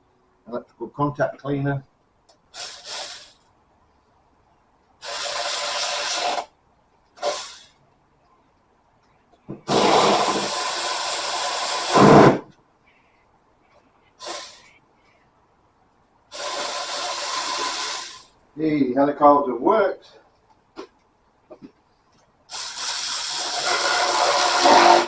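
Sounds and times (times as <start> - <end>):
aerosol can spraying: 2.6 - 3.4, 5.0 - 6.5, 7.2 - 7.7, 9.7 - 12.4, 14.2 - 14.6, 16.3 - 18.3, 22.5 - 25.0.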